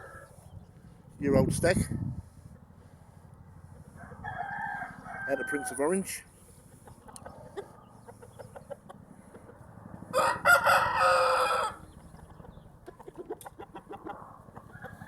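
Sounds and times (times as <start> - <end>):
rooster crowing: 0.0 - 0.4, 3.9 - 6.0, 10.1 - 11.9, 14.0 - 15.0
faint clucking: 5.3 - 9.7, 12.0 - 15.0.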